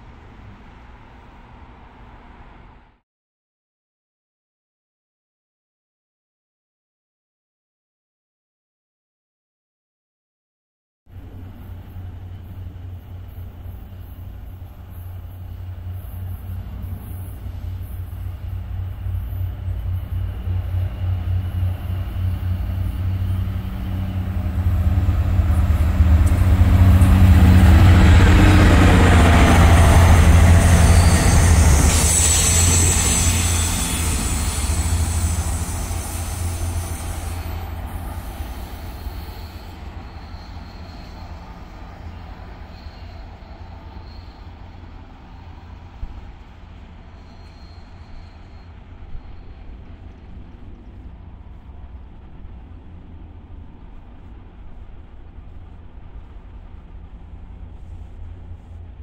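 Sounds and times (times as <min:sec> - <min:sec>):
train wheels rumbling on rail: 0:11.1 - 0:59.0
high-pitched squeal: 0:11.6 - 0:50.0.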